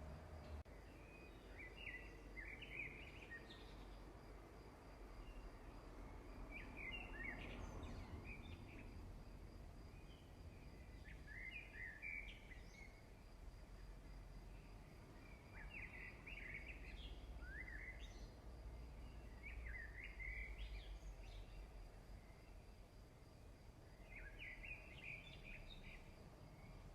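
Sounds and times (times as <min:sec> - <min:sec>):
faint birdsong chirps: 0:00.0 - 0:26.9.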